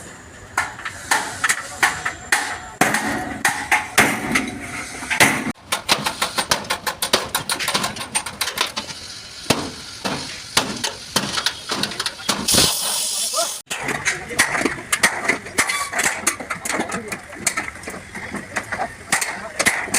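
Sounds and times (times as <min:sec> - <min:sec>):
hammer striking sheet metal: 0:00.6 - 0:08.6, 0:09.5 - 0:13.0.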